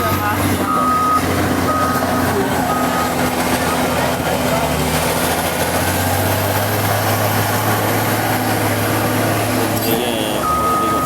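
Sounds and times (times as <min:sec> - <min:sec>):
heavy vehicle engine humming: 0:00.0 - 0:11.0.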